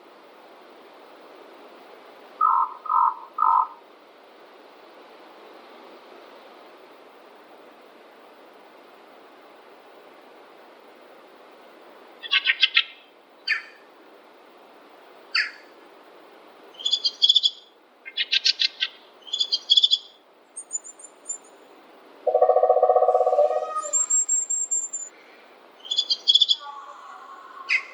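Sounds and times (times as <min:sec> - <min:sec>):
background hiss: 0:00.0 - 0:27.9
forest birds calling: 0:02.4 - 0:03.8, 0:12.2 - 0:13.8, 0:15.3 - 0:15.7, 0:16.7 - 0:27.9
low buzzy bird trill: 0:22.3 - 0:25.1, 0:25.8 - 0:27.9.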